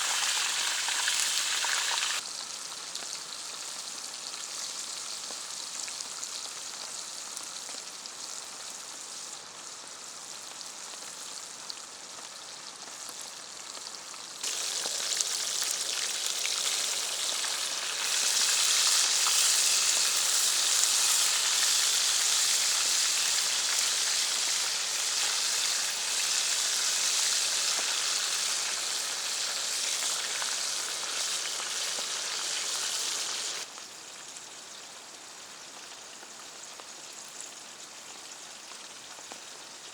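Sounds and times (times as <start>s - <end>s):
steady hiss: 0.0s - 4.5s, 12.8s - 39.9s
food sizzling in a pan: 0.0s - 39.9s.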